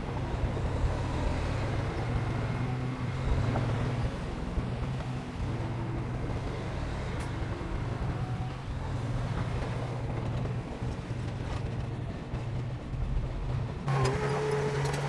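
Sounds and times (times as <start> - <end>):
heavy diesel engine droning: 11.4 - 15.0.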